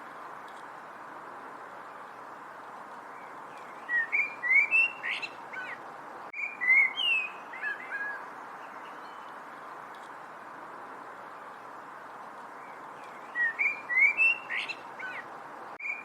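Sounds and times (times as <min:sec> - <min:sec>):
steady background hiss: 0:00.0 - 0:16.0
songbird whistling: 0:03.6 - 0:05.8, 0:06.4 - 0:09.2, 0:13.0 - 0:15.2, 0:15.8 - 0:16.0.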